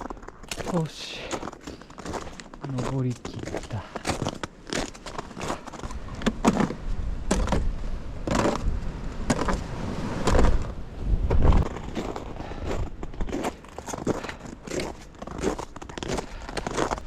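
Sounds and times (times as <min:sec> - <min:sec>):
footsteps crunching in snow: 0:00.0 - 0:17.0
wind buffeting microphone: 0:05.4 - 0:17.0.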